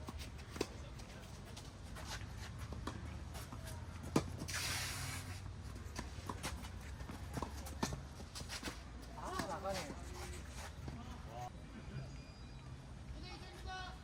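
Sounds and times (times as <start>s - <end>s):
brief hiss: 4.5s - 5.4s.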